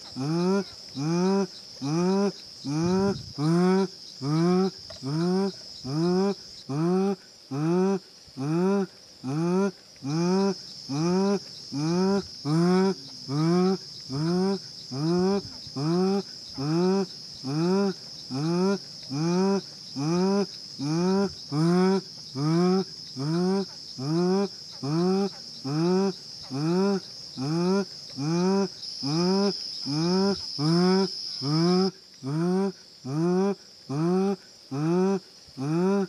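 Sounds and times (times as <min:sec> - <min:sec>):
high-pitched insect drone: 0:00.0 - 0:36.0.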